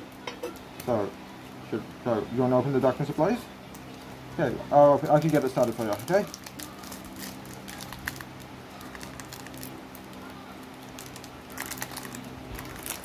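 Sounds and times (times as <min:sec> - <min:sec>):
foil pack crinkling and tearing: 0:04.9 - 0:13.0.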